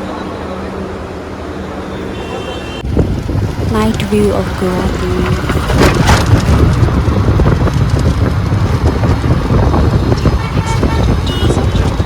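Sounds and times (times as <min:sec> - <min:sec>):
city traffic: 0:00.0 - 0:12.0
wind buffeting microphone: 0:02.8 - 0:12.0.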